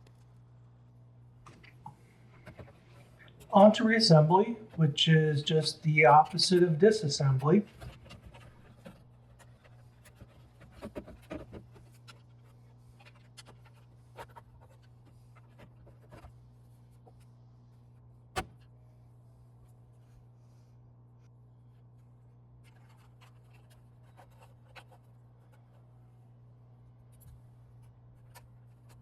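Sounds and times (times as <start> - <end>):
steady low hum: 0.0 - 29.0
plastic parts clicking and scraping: 1.5 - 3.8, 7.4 - 16.3.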